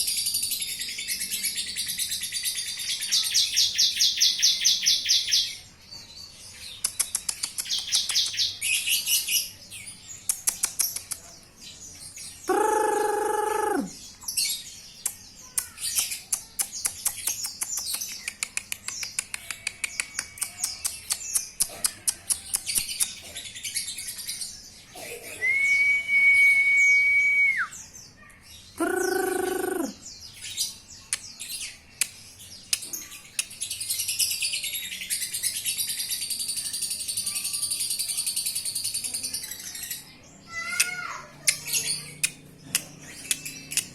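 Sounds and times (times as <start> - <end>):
lovebird chirping and trilling: 12.0 - 24.8, 27.7 - 32.0, 32.8 - 43.9
lower held bird call: 12.5 - 14.0, 25.4 - 27.8, 28.8 - 30.0.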